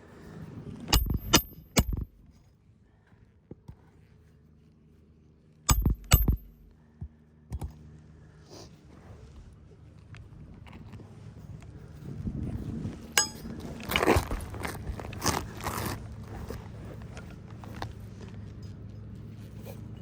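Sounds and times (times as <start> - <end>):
hammer striking nails: 0.9 - 2.0, 5.7 - 6.7.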